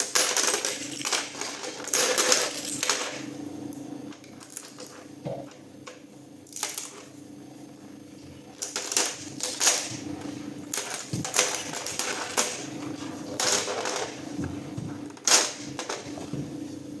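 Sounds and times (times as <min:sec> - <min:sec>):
hard plastic clattering: 0:08.6 - 0:16.5.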